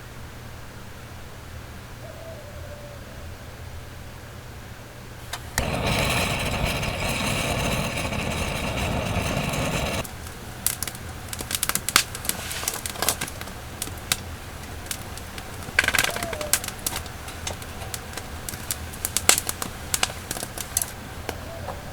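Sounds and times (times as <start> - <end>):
loud hiss: 5.2 - 21.2
wood fire crackling and popping: 5.2 - 21.5.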